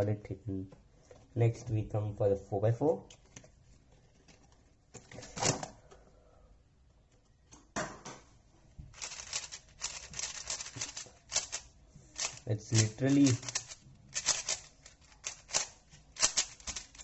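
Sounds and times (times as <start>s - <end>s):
packaging rustling: 8.9s - 17.0s
puzzle cube clicking: 9.0s - 17.0s.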